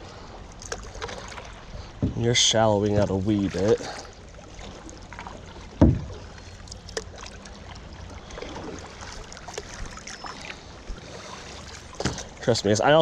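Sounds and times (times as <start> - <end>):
creek water trickling: 0.0 - 13.0
heavy thump: 2.0 - 2.2, 5.8 - 6.2.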